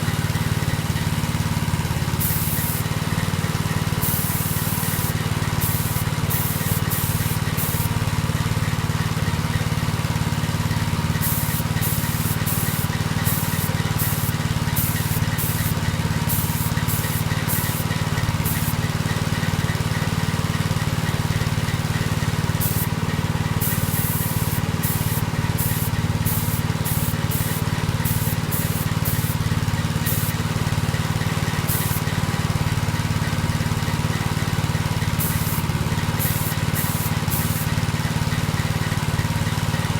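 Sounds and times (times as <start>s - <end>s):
paint spraying in hissing bursts: 2.1s - 8.1s, 11.1s - 19.8s, 21.0s - 32.7s, 33.9s - 38.6s.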